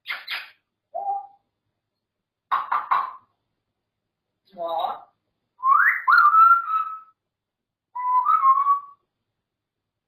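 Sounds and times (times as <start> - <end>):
parrot whistling: 5.6 - 7.2, 8.0 - 9.0.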